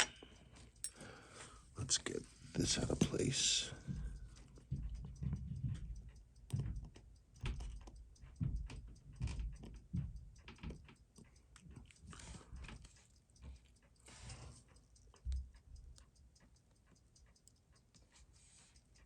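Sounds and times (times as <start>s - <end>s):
metal tools clicking on watch parts: 0.0s - 1.1s.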